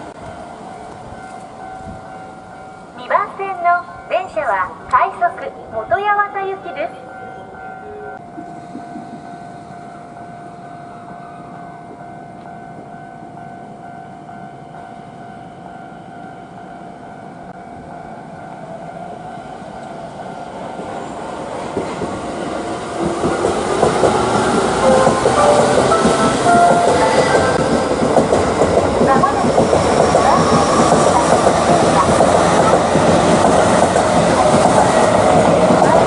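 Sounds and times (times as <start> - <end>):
electric train running noise: 17.4 - 36.0.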